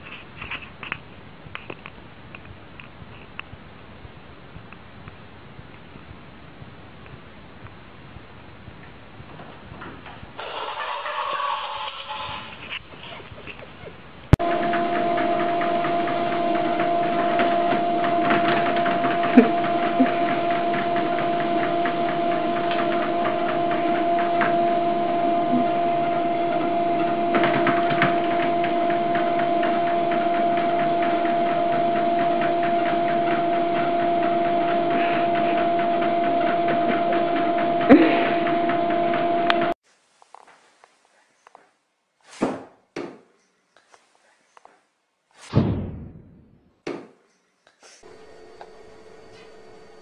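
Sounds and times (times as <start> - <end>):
treadmill motor whine: 14.3 - 39.8, 48.0 - 50.0.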